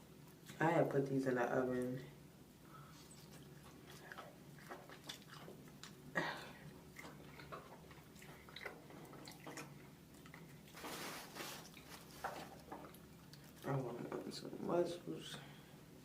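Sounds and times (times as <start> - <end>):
person chewing: 3.0 - 13.6.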